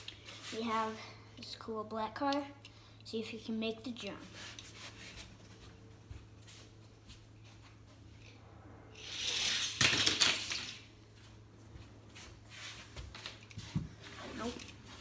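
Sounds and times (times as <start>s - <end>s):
toy car rattling down plastic track: 9.0s - 10.8s.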